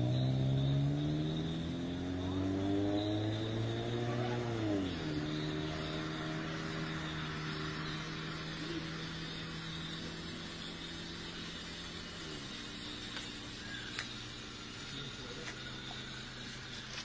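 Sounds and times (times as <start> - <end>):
car engine idling: 0.0 - 17.0
steady high hiss: 3.1 - 17.0.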